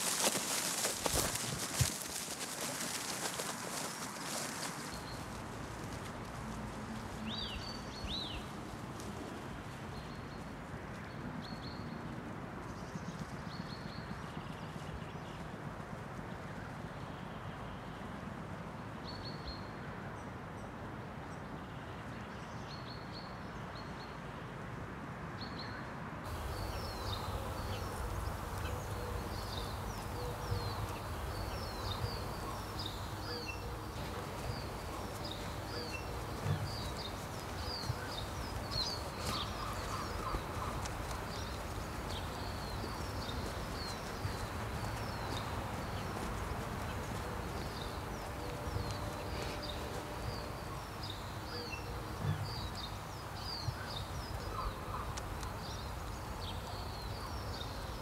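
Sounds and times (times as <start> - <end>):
small birds chirping: 0.0 - 9.1, 26.3 - 58.0
outdoor background noise: 0.0 - 58.0.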